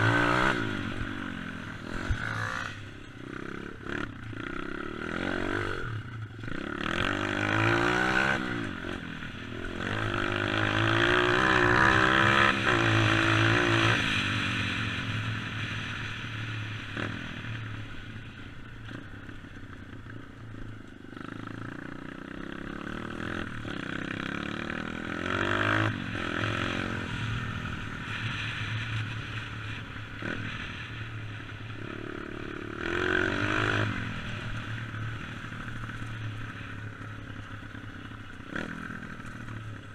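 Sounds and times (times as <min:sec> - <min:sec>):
dirt bike engine revving: 0:00.0 - 0:14.8, 0:21.8 - 0:28.4.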